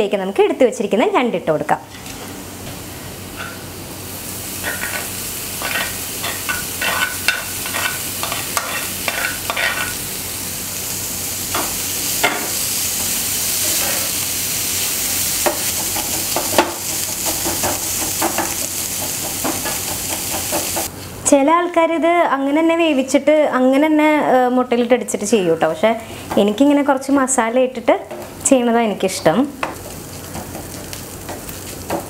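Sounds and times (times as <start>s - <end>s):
food sizzling in oil: 2.0s - 20.9s, 25.3s - 32.0s
spatula scraping a pan: 4.6s - 10.0s.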